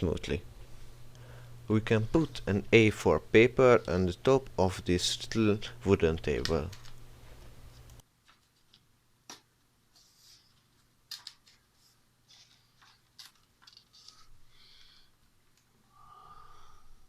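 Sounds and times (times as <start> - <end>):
paper rustling and clicking: 7.7 - 9.4, 10.0 - 14.3.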